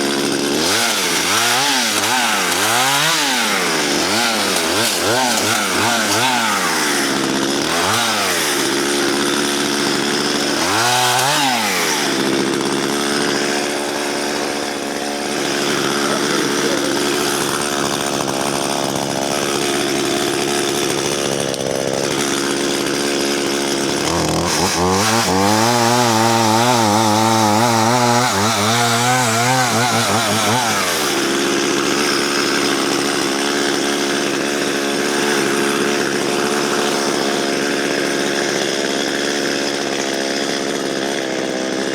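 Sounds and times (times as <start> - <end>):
chainsaw cutting log: 0.0 - 41.9.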